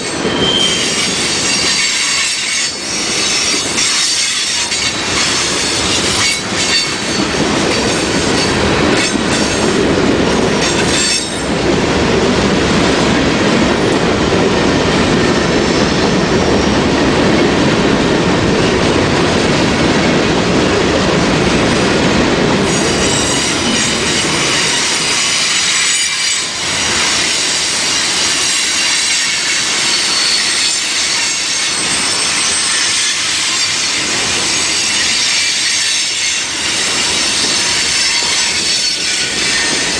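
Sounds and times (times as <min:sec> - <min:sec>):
train wheel squeal: 0:00.0 - 0:09.8, 0:10.6 - 0:11.6, 0:15.4 - 0:16.9, 0:22.7 - 0:39.9
train cars rumbling on rails: 0:00.0 - 0:39.9.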